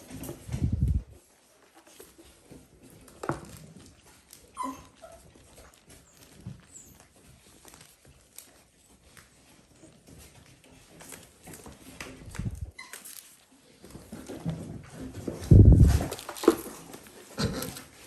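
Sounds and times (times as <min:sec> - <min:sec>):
puppies scuffling: 0:00.0 - 0:18.0
puppy squeak: 0:04.5 - 0:05.3, 0:12.7 - 0:13.1.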